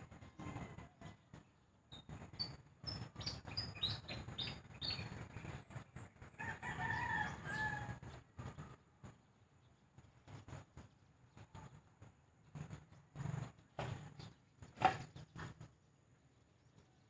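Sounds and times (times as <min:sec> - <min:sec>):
rooster crowing: 0:00.2 - 0:01.2, 0:06.4 - 0:08.1
small bird chirping: 0:01.9 - 0:06.1.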